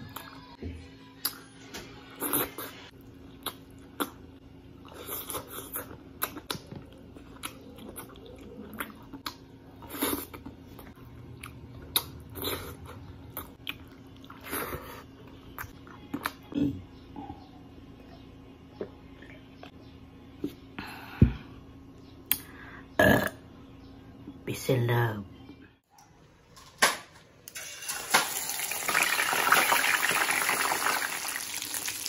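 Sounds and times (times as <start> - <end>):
person chewing: 2.2 - 4.2, 4.8 - 16.5.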